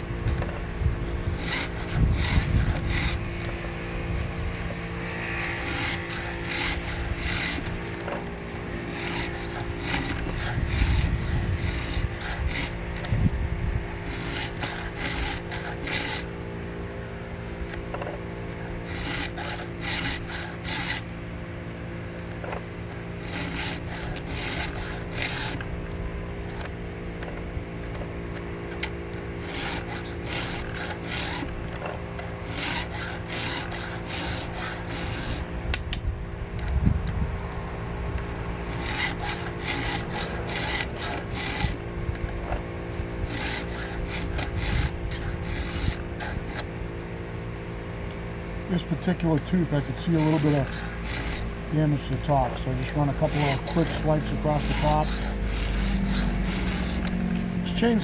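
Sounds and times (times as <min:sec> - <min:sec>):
hand file rasping on chainsaw chain: 0:01.2 - 0:03.5, 0:05.3 - 0:13.2, 0:14.0 - 0:16.5, 0:17.5 - 0:21.1, 0:23.2 - 0:26.0, 0:26.6 - 0:36.0, 0:38.6 - 0:41.8, 0:42.4 - 0:46.7, 0:48.8 - 0:58.0.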